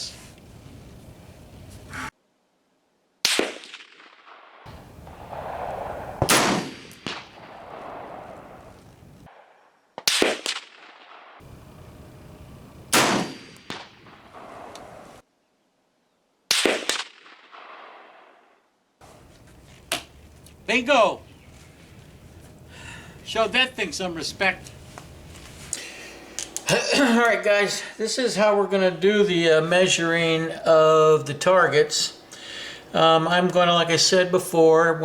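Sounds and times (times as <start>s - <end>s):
rifle shots hitting steel target: 3.3s - 8.7s, 10.0s - 11.4s, 12.9s - 15.0s, 16.5s - 18.3s.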